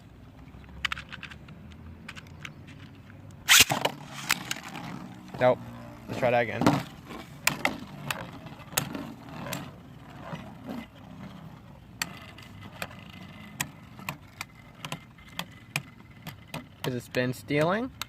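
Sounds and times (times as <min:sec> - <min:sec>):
sharp plastic clicks and knocks: 0:13.6 - 0:18.0.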